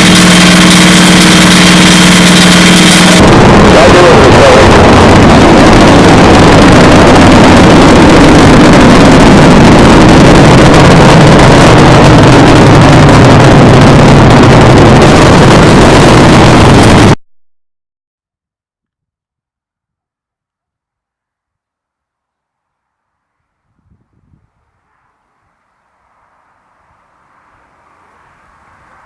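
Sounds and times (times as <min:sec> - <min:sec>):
loud distorted noise: 0:00.0 - 0:17.2
low hum: 0:00.0 - 0:17.2.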